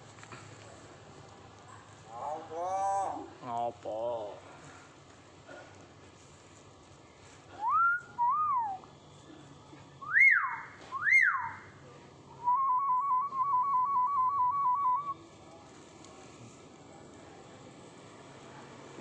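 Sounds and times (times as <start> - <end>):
bird whistling: 7.6 - 8.8, 10.0 - 11.7.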